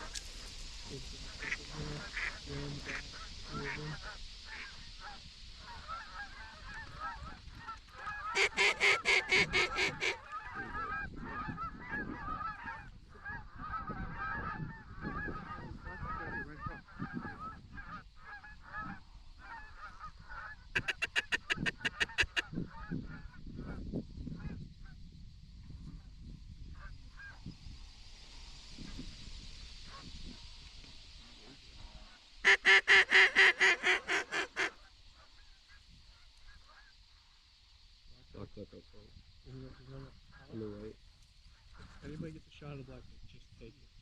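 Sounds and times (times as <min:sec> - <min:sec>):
flock of waterfowl calling: 0:00.9 - 0:23.8, 0:29.8 - 0:37.2
rapid loud quacks: 0:01.3 - 0:04.8, 0:08.1 - 0:12.6, 0:20.8 - 0:22.6, 0:32.4 - 0:34.8.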